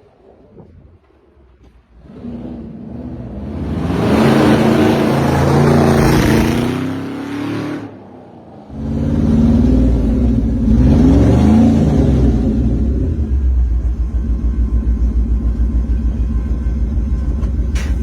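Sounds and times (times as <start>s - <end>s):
car engine accelerating hard: 2.0s - 15.8s.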